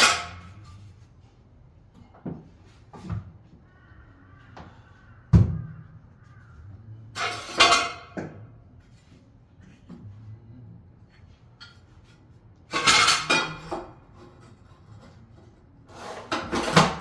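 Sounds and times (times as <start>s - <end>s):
tools rattling clatter: 7.2s - 8.3s, 12.7s - 15.1s.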